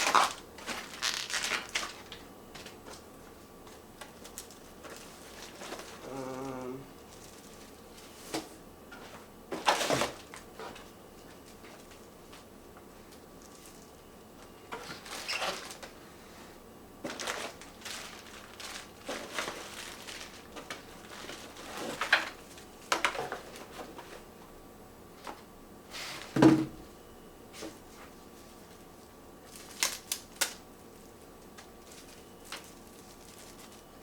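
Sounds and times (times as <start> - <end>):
packaging rustling and scraping: 0.0 - 3.0, 3.7 - 6.1, 7.0 - 12.5, 13.1 - 14.1, 14.7 - 16.4, 17.0 - 24.3, 27.5 - 34.0
box thump: 26.3 - 26.8.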